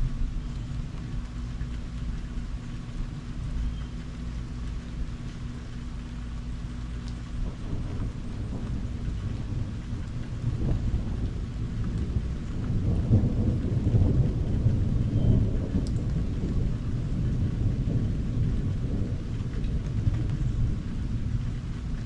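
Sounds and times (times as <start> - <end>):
steady rain: 0.0 - 22.0
thunder rumbling: 0.0 - 22.0.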